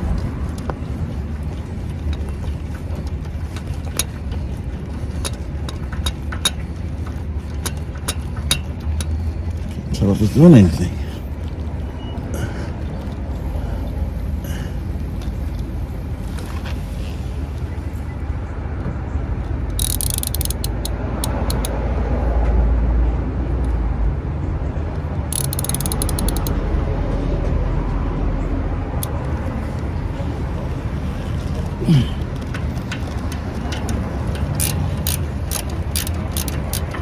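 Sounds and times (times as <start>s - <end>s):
socket ratchet clicking: 19.7s - 21.8s, 25.3s - 26.6s, 32.6s - 37.0s.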